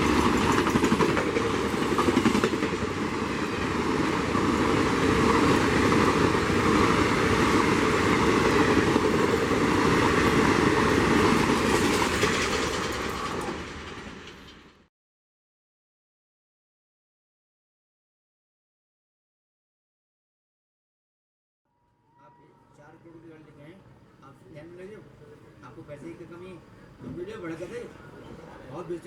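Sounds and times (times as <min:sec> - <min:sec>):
train wheels clattering over rail joints: 0:00.0 - 0:03.4, 0:04.0 - 0:14.9.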